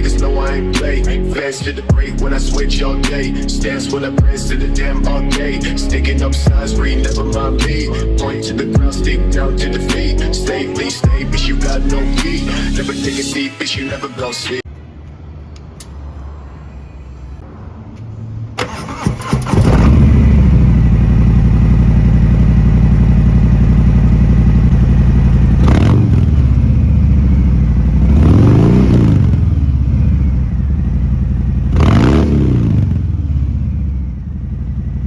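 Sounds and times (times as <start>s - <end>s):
motorcycle starter cranking: 18.6s - 21.0s
motorcycle throttle blips: 18.6s - 35.0s
motorcycle engine idling: 19.6s - 35.0s.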